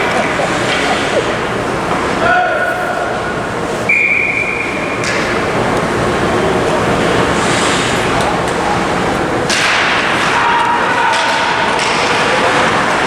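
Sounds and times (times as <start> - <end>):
referee's whistle blast: 3.9 - 4.8.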